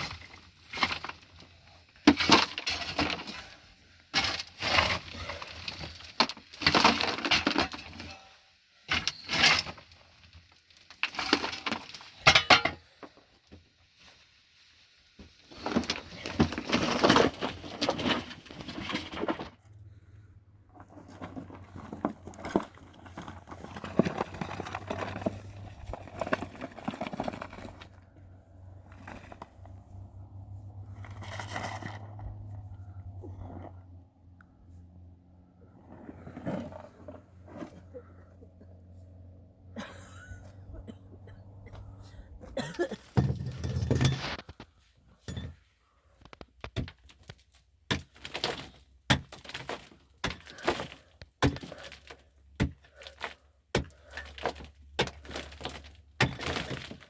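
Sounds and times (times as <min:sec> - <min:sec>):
hard material cracking and clattering: 0:46.2 - 0:57.0.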